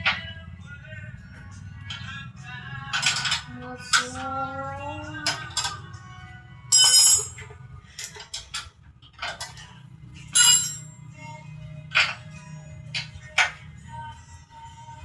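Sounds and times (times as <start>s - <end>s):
metal striking metal clinks: 6.7s - 7.4s, 10.4s - 11.0s.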